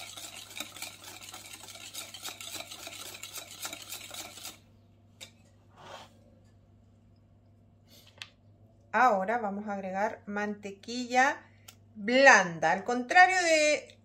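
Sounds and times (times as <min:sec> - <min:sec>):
whisk clicking against glass bowl: 0:00.0 - 0:04.6.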